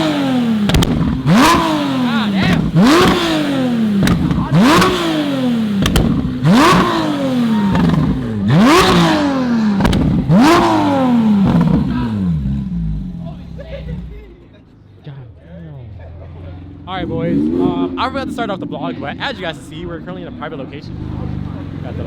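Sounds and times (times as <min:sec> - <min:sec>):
sharp exhaust cracks: 0:00.0 - 0:13.0
car engine revving: 0:00.0 - 0:14.6, 0:15.6 - 0:22.0.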